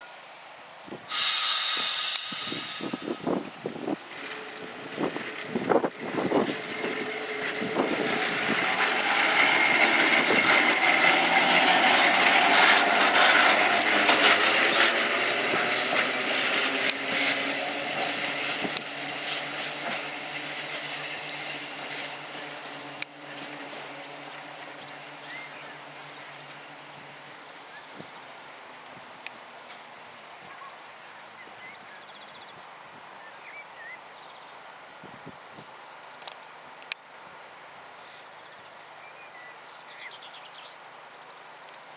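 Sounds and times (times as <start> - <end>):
faint tram whine: 0.9 - 41.8
tram running noise: 1.0 - 41.9
tram hiss burst: 1.1 - 21.5.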